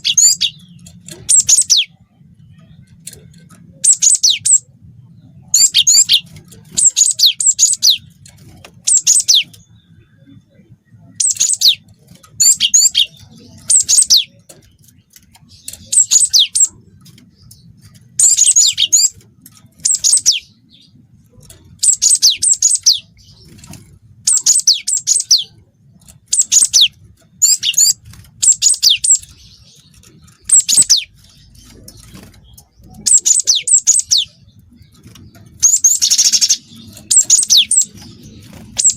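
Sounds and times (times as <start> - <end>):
bird singing chirps and trills: 0.0 - 38.9.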